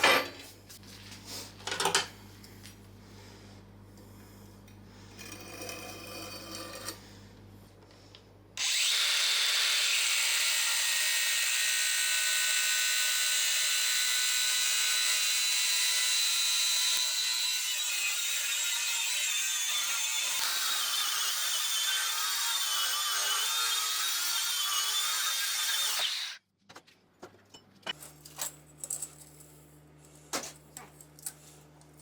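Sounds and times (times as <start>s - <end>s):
power tool whining: 8.6s - 18.3s.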